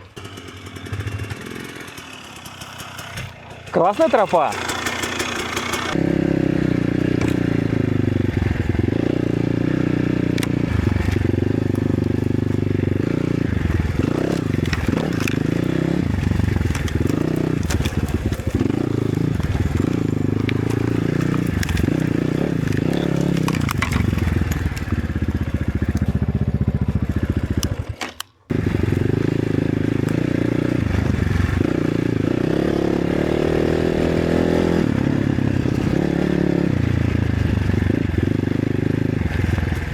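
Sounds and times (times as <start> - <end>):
motorcycle engine revving: 0.0 - 39.9
clicks and knocks: 14.0 - 24.8.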